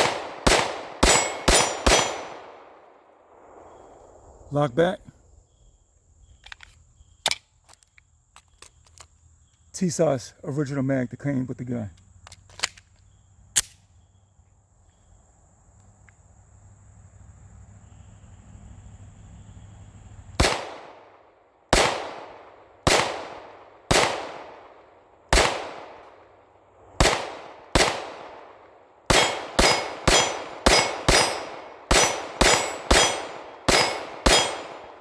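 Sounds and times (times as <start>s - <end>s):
pistol shots: 0.0s - 2.9s, 20.4s - 26.2s, 27.0s - 35.0s
insects chirping: 0.0s - 35.0s.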